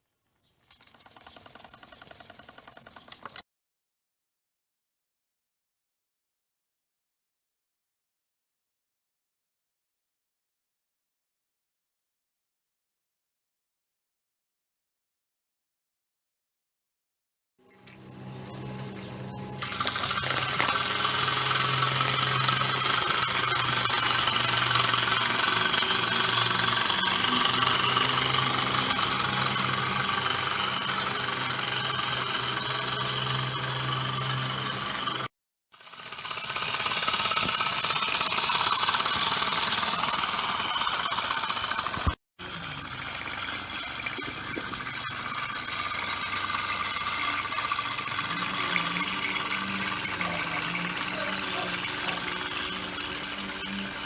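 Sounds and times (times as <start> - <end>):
low hum: 17.7 - 35.3
model steam engines clattering: 19.6 - 35.0, 36.2 - 54.0.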